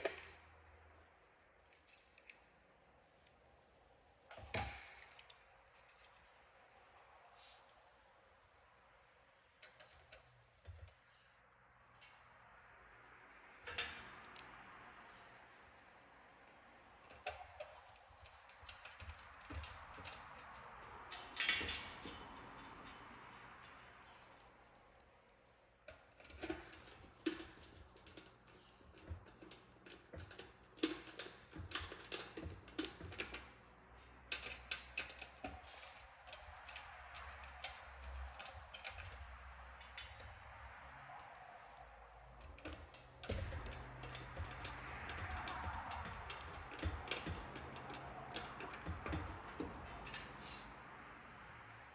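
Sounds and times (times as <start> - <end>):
hand tools clicking and tapping: 17.0 - 24.8, 25.9 - 33.6, 34.2 - 51.9.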